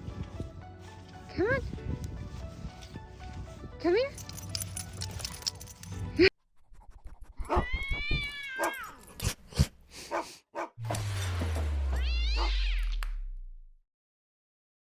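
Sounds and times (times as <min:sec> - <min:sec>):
cat meowing: 0:07.5 - 0:09.0, 0:12.0 - 0:13.0
short rising cry: 0:10.8 - 0:13.3
low hum falling in pitch: 0:10.8 - 0:13.8.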